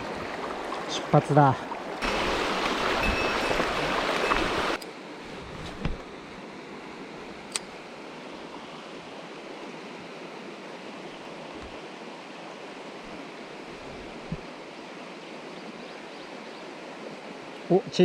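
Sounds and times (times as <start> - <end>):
stream water rushing: 0.0 - 18.0
sharp click: 7.5 - 7.7.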